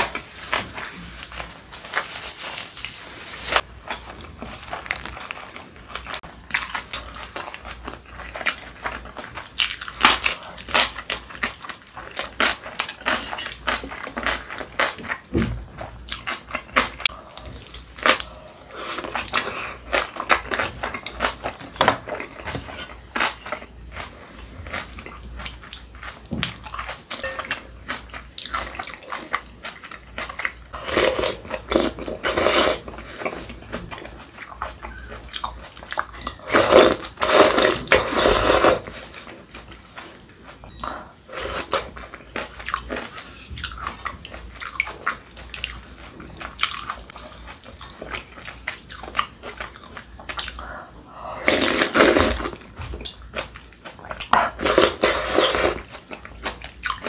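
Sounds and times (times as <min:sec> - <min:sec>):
chewing and crunching food: 0:00.0 - 0:57.0.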